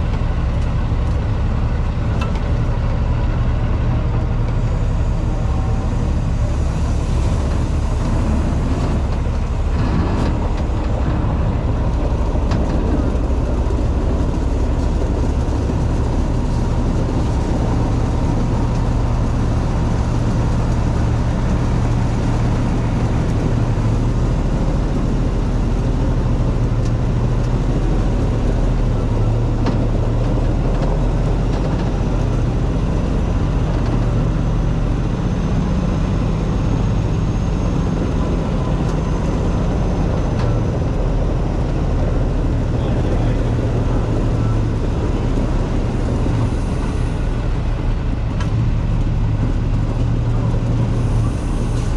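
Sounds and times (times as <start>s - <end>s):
diesel engine running steadily: 0.0s - 51.9s.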